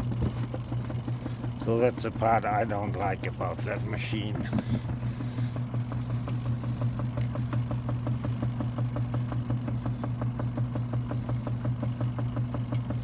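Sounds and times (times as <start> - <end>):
washing machine spinning: 0.0 - 13.0.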